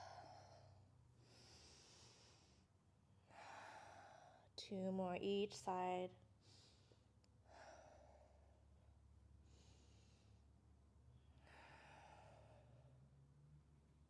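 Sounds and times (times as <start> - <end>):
faint human breathing: 0.0 - 4.6, 6.4 - 10.6, 11.2 - 13.2
faint low hum: 0.0 - 14.0.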